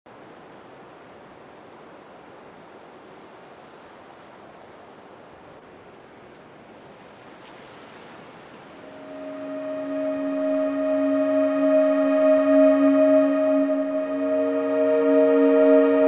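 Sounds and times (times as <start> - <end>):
sea surf washing: 8.7 - 16.0.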